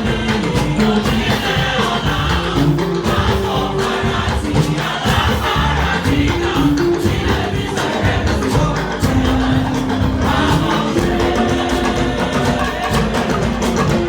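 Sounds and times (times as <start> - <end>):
choir singing: 0.0 - 14.0
drums: 0.0 - 14.0
instrumental accompaniment: 0.0 - 14.0.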